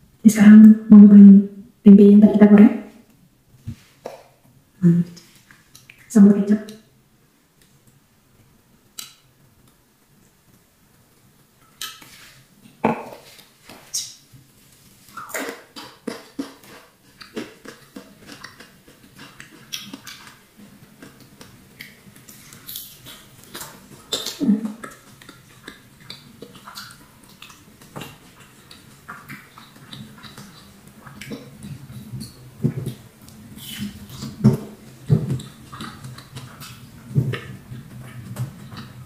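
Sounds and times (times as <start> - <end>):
chewing and mouth clicks: 5.1 - 6.1, 15.0 - 39.0.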